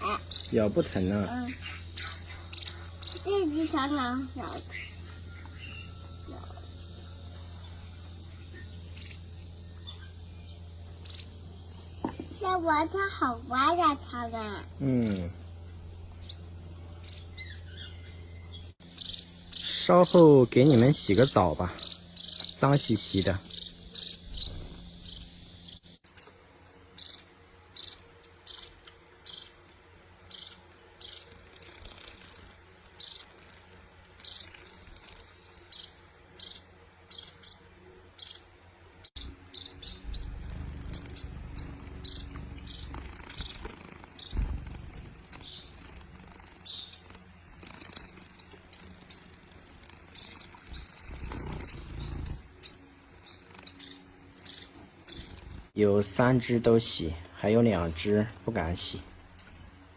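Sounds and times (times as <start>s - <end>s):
young birds chirping: 0.0s - 26.4s, 27.0s - 59.9s
low rumbling: 39.8s - 43.6s.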